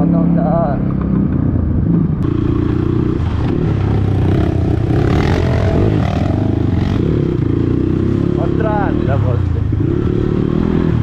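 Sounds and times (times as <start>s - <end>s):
dirt bike engine revving: 2.2s - 11.0s.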